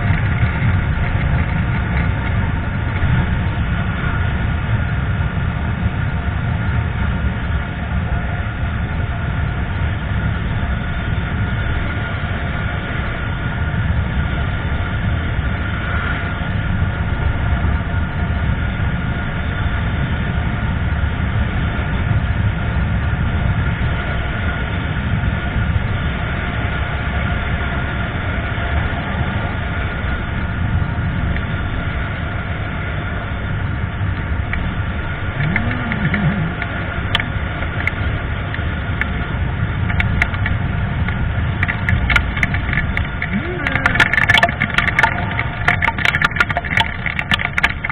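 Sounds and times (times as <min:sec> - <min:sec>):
motorcycle engine drone: 0:00.0 - 0:47.9
wind rumble on microphone: 0:00.0 - 0:47.9.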